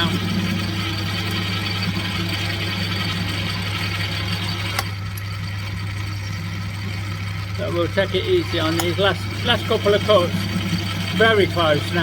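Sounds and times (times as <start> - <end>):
metal lathe cutting: 0.0 - 12.0
sharp click: 4.7 - 5.3.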